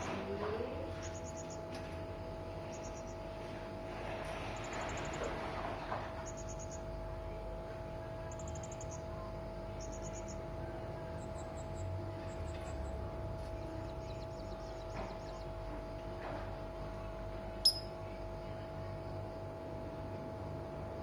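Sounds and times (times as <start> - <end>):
steady low hum: 0.0 - 21.0
parrot chirping high-pitched: 17.7 - 17.9.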